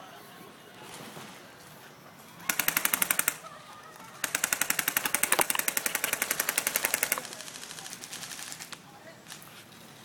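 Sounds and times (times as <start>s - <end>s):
airsoft gun firing bursts: 2.4s - 3.5s, 4.1s - 8.8s.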